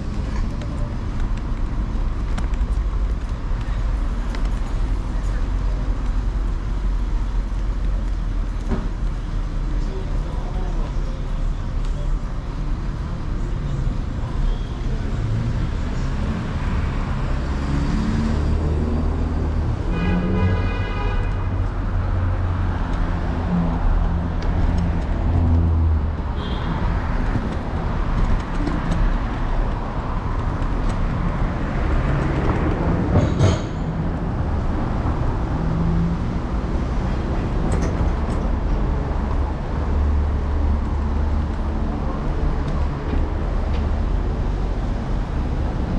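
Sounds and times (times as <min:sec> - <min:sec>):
city street traffic: 0:00.0 - 0:45.9.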